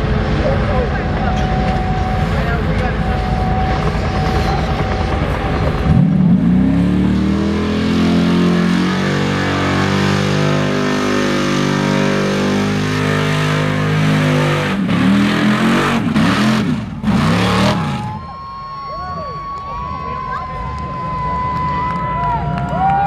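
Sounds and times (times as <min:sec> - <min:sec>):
truck engine revving: 0:00.0 - 0:18.3.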